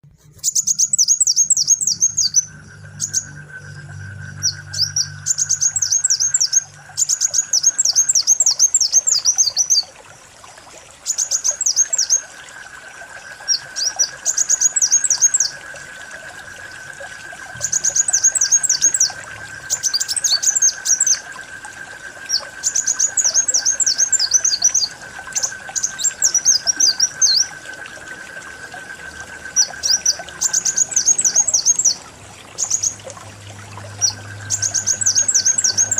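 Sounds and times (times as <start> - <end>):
sunbird twittering chirps: 0.3 - 9.9, 11.0 - 12.4, 13.4 - 15.6, 17.4 - 21.4, 22.2 - 27.6, 29.4 - 32.0, 32.6 - 33.1, 33.8 - 35.9.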